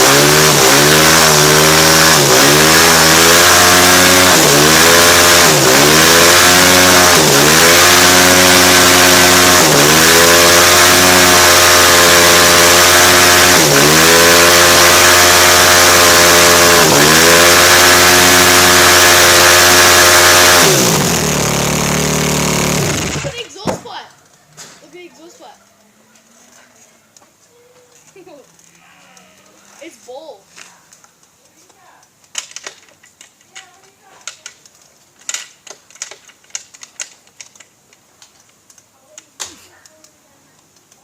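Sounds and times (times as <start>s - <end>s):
motorcycle engine revving: 0.0s - 23.5s
rear tyre spinning: 0.0s - 23.5s.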